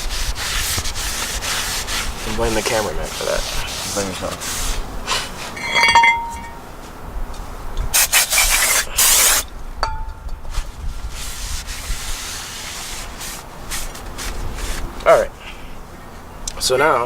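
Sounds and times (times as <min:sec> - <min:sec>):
metal brake parts clinking: 0:05.5 - 0:06.6, 0:09.8 - 0:10.5.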